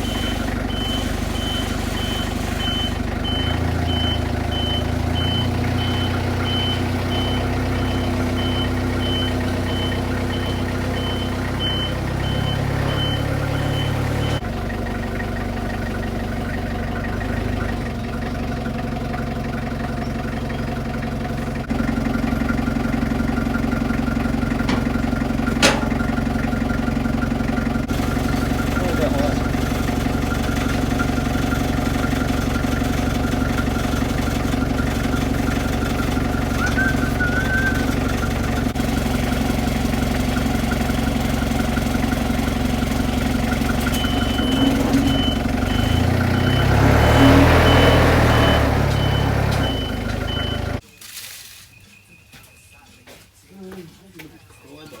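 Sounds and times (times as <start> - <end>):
high warning beep: 0.0 - 14.4, 43.8 - 50.8
vehicle engine running: 0.0 - 50.8.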